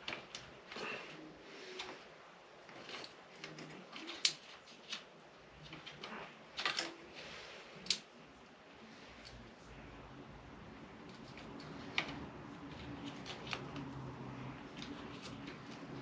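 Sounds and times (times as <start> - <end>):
handling rustle: 0.0 - 8.0
metal tools clinking and tapping: 2.7 - 5.0.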